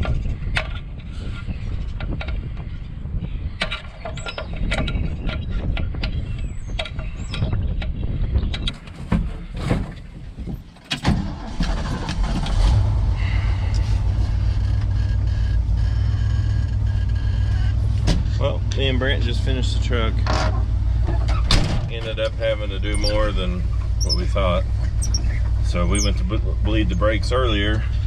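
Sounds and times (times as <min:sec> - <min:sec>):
truck engine starting and idling: 0:10.9 - 0:28.0.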